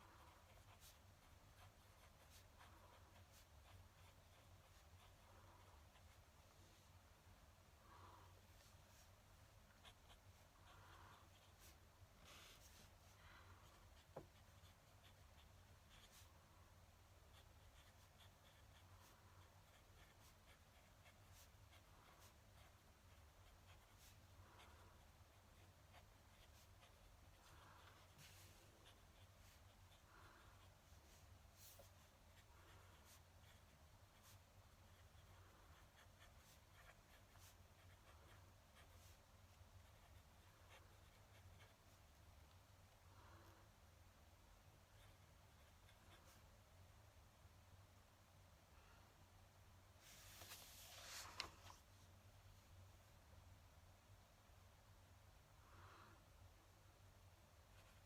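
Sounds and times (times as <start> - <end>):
pen nib scratching on paper: 0.0 - 6.3, 9.6 - 16.4, 17.0 - 42.6.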